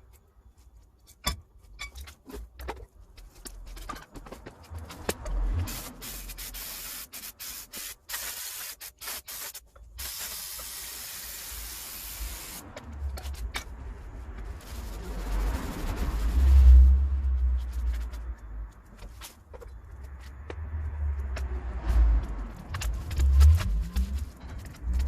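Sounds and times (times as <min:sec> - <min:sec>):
aerosol can spraying: 0:05.6 - 0:12.7, 0:14.4 - 0:17.0.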